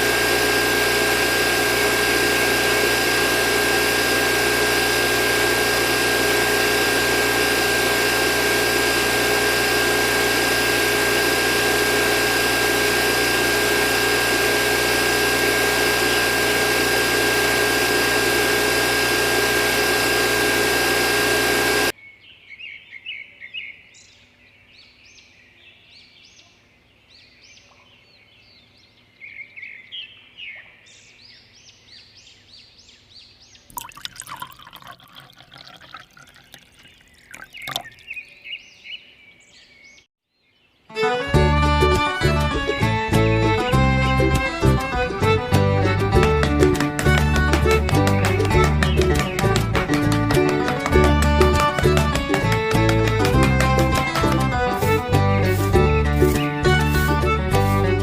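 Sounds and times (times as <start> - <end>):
small electric motor whining: 0.0 - 21.9, 42.2 - 58.0
birds chirping: 35.1 - 40.8.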